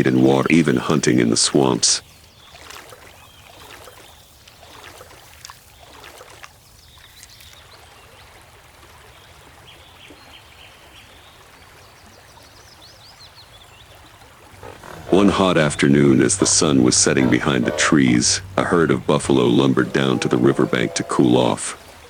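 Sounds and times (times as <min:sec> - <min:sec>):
shallow water splashing and trickling: 0:00.0 - 0:09.6.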